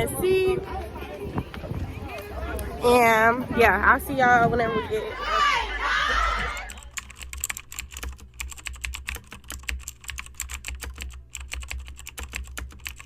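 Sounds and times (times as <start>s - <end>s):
rapid irregular clicking: 6.5s - 13.0s.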